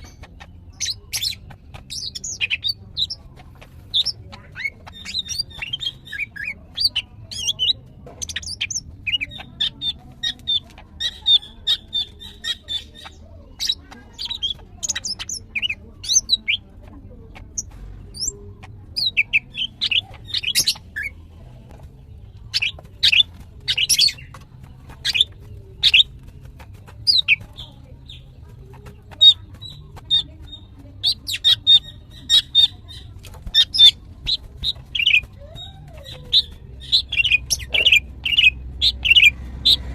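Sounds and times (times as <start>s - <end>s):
bird chirping and whistling: 0.0s - 3.2s, 3.9s - 16.6s, 19.0s - 21.2s, 22.5s - 24.4s, 25.0s - 28.2s, 29.1s - 39.9s.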